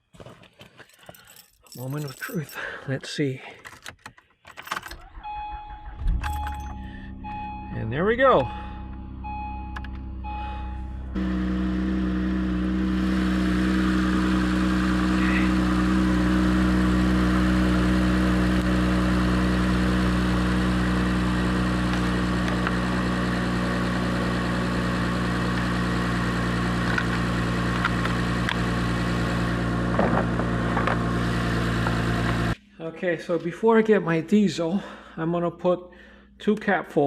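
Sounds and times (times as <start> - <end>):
car engine idling: 5.0 - 32.6.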